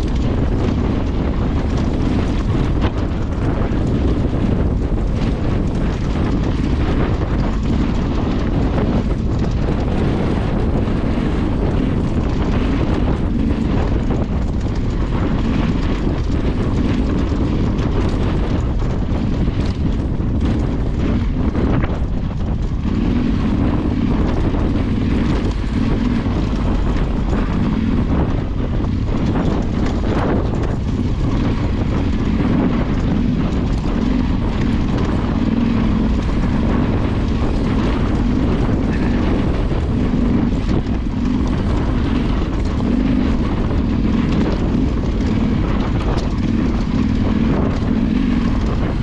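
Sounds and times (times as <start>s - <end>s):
motorcycle engine running: 0.0s - 49.0s
wind buffeting microphone: 0.0s - 49.0s.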